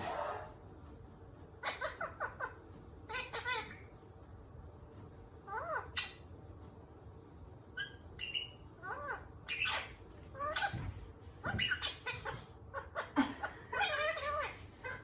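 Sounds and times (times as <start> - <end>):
parakeet speech-like babble: 0.0 - 0.6, 1.6 - 4.0, 5.4 - 6.2, 7.8 - 15.0
parakeet chirping and squawking: 1.6 - 4.2, 5.3 - 6.5, 7.7 - 15.0.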